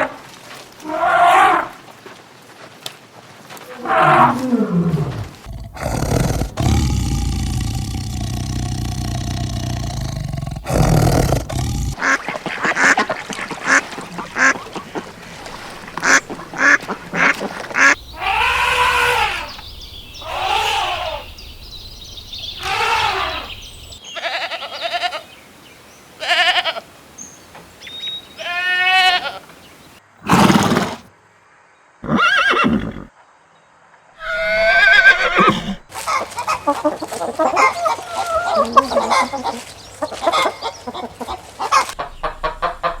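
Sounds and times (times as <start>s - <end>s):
farm animal calls: 3.7s - 21.6s, 22.5s - 25.3s, 34.2s - 43.0s.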